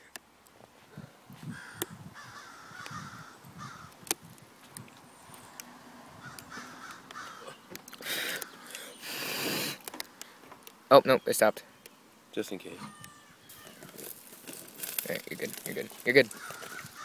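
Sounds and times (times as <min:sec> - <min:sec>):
faint bird calls: 0:01.5 - 0:04.0, 0:06.2 - 0:10.4, 0:11.0 - 0:14.1, 0:16.1 - 0:17.0.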